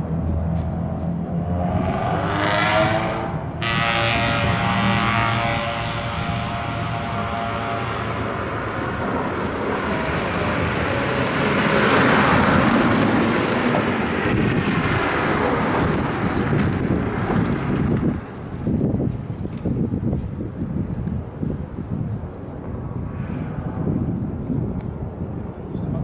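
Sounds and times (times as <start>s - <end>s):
race car passing at speed: 0.0s - 18.5s.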